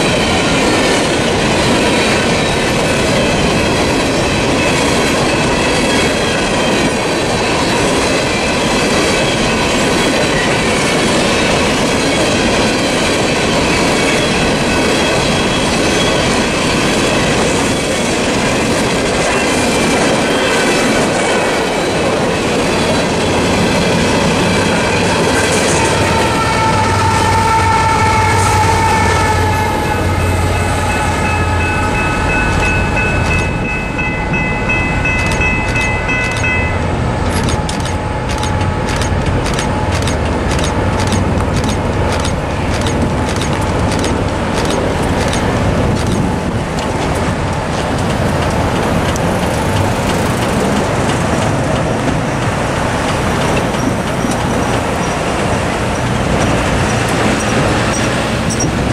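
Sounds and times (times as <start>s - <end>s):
crossing bells dinging: 0.0s - 43.6s
road traffic: 11.8s - 58.9s
diesel locomotive rumble: 21.2s - 58.9s.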